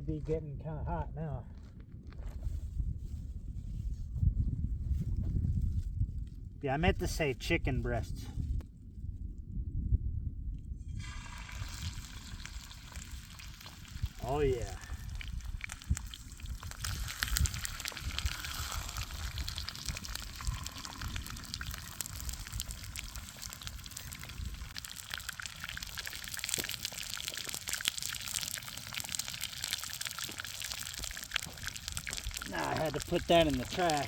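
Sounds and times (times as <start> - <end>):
food sizzling in oil: 10.8 - 34.0
crackling pops: 12.4 - 34.0.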